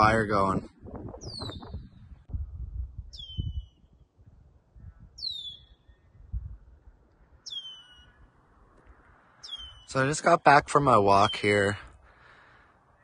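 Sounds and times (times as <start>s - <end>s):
bird whistle sliding downward: 3.1s - 3.8s.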